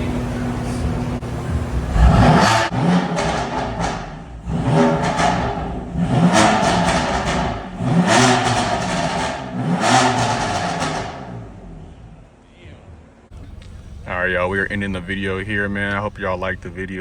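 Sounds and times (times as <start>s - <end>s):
car engine revving: 0.0s - 12.4s, 13.2s - 17.0s.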